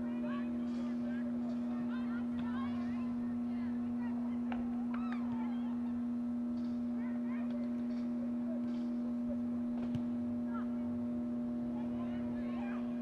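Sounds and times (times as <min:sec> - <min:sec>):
faint distant shouts: 0:00.0 - 0:06.1
steady low hum: 0:00.0 - 0:13.0.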